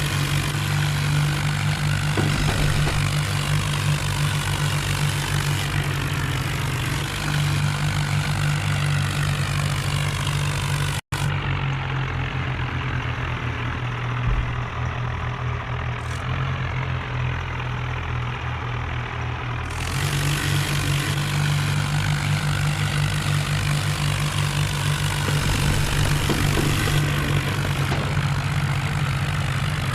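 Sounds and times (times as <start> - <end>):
tractor diesel engine droning: 0.0 - 29.9.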